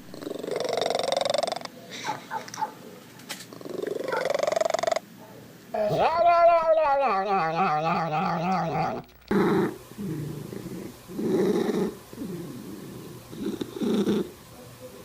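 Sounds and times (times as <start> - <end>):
cat yowling: 5.8 - 9.1
cat growling: 5.8 - 14.4.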